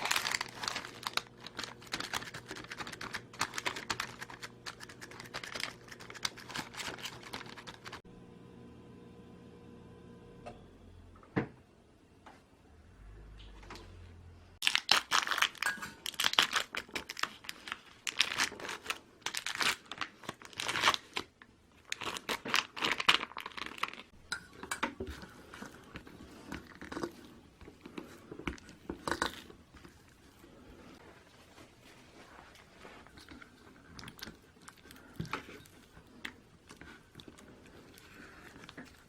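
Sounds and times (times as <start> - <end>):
packaging crinkling and rustling: 0.0 - 8.0, 14.6 - 24.2.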